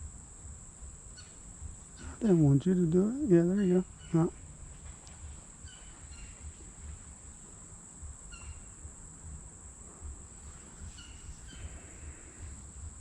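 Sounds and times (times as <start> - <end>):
high insect drone: 0.0 - 13.0
bird call notes: 3.2 - 4.4.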